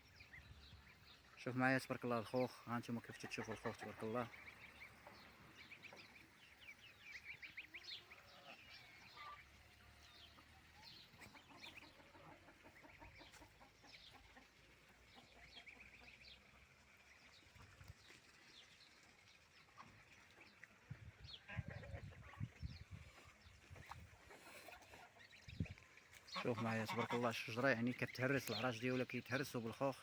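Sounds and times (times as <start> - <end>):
small bird calls: 2.3 - 30.0
chickens clucking: 2.4 - 6.3, 10.3 - 16.5, 21.4 - 28.6.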